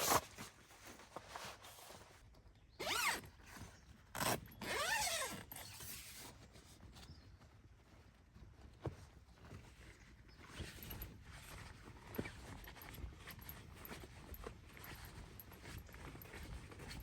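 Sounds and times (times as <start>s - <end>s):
zipper rasping: 0.0s - 0.3s, 2.8s - 3.3s, 4.2s - 6.3s.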